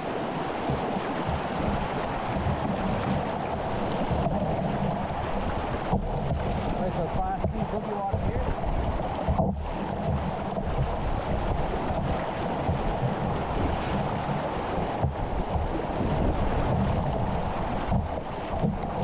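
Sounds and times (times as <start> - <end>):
river rapids rushing: 0.0 - 10.0
wind buffeting microphone: 0.0 - 19.0.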